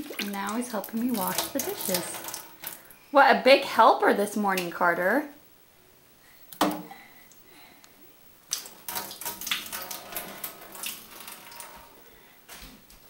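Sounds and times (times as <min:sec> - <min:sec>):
water splashing in a sink: 0:00.0 - 0:02.9, 0:08.5 - 0:12.0.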